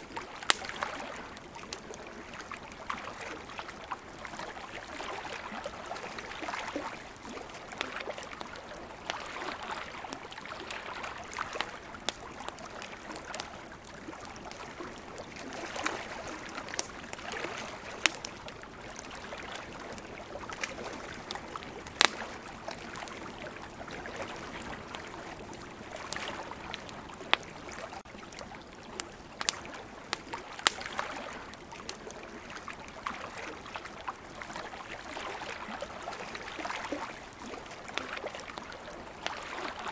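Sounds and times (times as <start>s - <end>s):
campfire crackling and popping: 0.0s - 39.9s
ocean waves: 0.0s - 39.9s.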